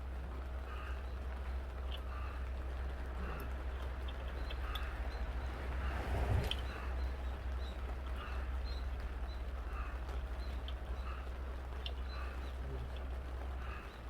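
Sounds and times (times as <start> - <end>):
steady low rumble: 0.0 - 9.9
birds chirping: 3.2 - 14.0.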